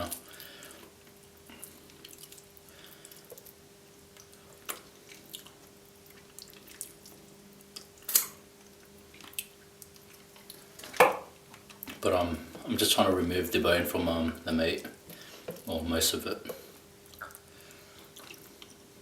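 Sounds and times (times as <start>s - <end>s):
wet squishing of chicken meat: 1.5s - 10.8s.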